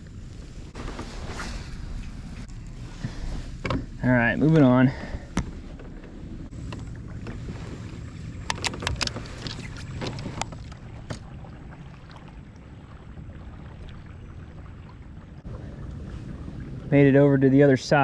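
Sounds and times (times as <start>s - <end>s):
water along kayak hull: 0.0s - 18.0s
sharp clicks and knocks: 8.4s - 11.2s.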